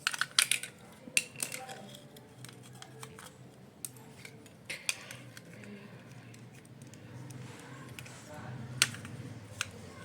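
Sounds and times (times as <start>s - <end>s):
plastic switch parts clicking: 8.8s - 9.8s.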